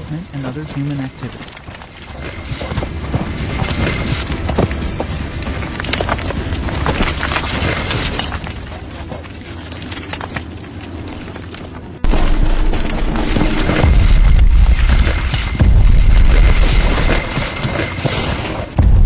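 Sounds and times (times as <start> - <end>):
noisy background: 0.0 - 19.0
deep rumbling boom: 12.0 - 17.1, 18.8 - 19.0.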